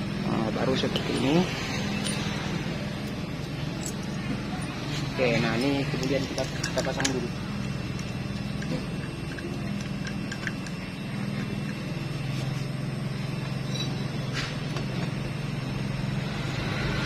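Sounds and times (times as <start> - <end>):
engine droning: 0.0 - 17.0
metal parts clicking: 3.0 - 4.8, 5.4 - 11.9.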